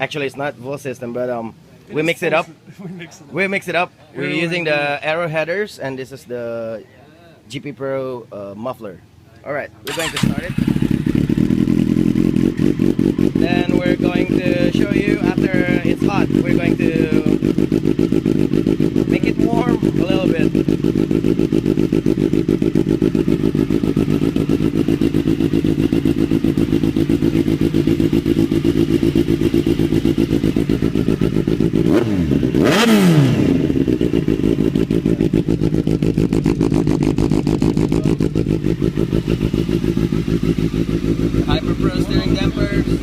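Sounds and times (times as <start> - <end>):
motorcycle engine idling and revving: 8.2 - 43.0.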